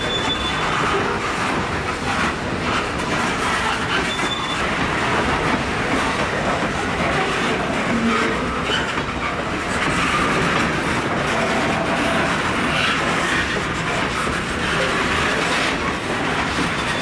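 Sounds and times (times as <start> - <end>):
high wheel squeal: 0.0 - 1.2, 3.6 - 4.9, 16.6 - 17.0
freight train wheels rumbling: 0.0 - 17.0.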